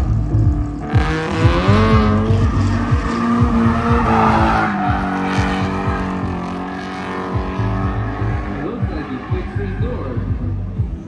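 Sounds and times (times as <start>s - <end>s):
car engine at high revs: 0.0s - 11.0s
tyres squealing: 1.2s - 9.9s.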